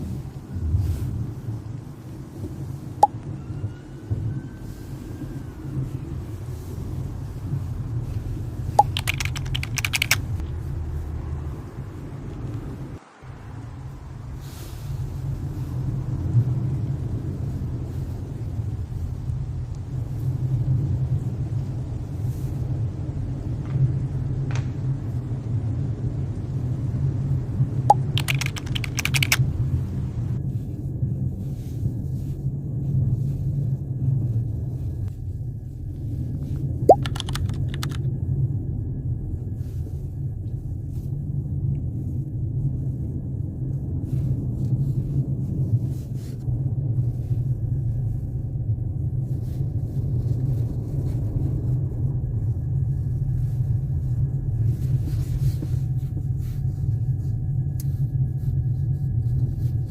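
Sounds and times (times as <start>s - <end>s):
steady low hum: 0.0s - 3.4s, 4.1s - 59.9s
light clicks: 8.8s - 10.4s
sharp clicks: 8.8s - 10.4s, 27.9s - 29.4s, 36.9s - 38.0s.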